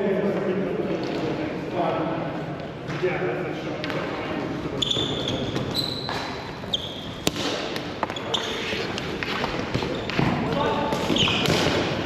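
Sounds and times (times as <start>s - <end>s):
players' voices: 0.1s - 11.9s
sneakers squeaking on floor: 4.7s - 12.0s
stick hitting ball: 7.0s - 12.0s.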